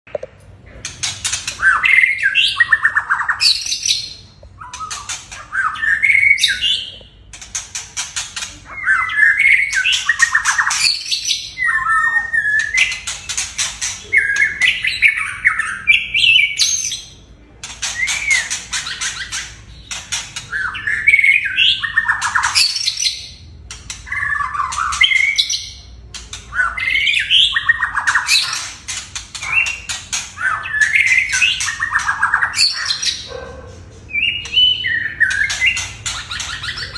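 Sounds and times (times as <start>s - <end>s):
birds singing: 0.4s - 36.9s.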